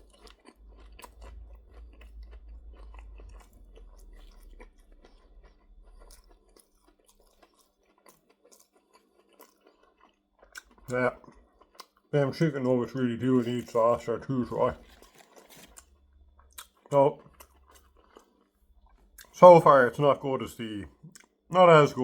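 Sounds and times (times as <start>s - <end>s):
person chewing: 0.0s - 22.0s
low rumble: 1.0s - 5.9s.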